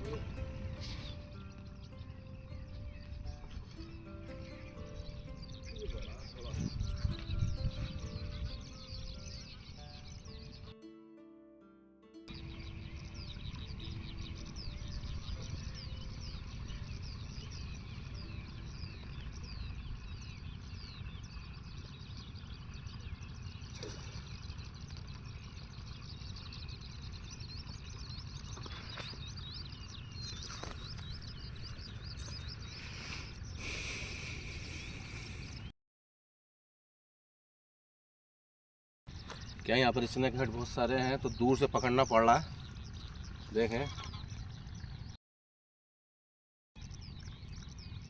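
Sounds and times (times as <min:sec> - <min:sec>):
steady low rumble: 0:00.0 - 0:10.4, 0:12.3 - 0:35.7
small birds chirping: 0:00.0 - 0:10.9, 0:12.3 - 0:35.7, 0:39.1 - 0:45.2, 0:46.8 - 0:48.0.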